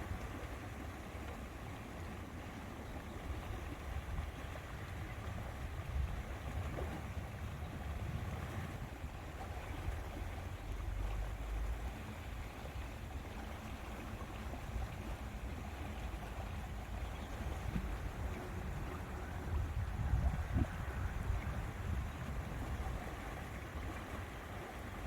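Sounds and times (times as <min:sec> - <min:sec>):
wind buffeting microphone: 0:03.4 - 0:11.0, 0:14.8 - 0:25.0.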